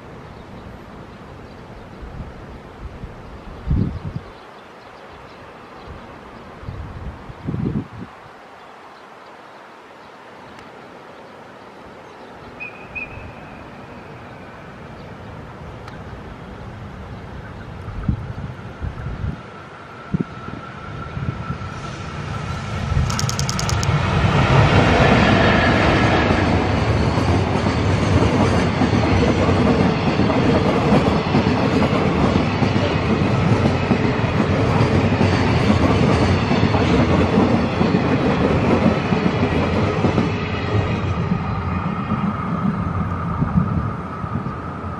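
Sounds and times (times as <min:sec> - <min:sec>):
electric locomotive passing: 0:10.2 - 0:44.9
train wheels clickety-clack rumble: 0:22.6 - 0:44.6
sharp clicks: 0:23.0 - 0:24.0.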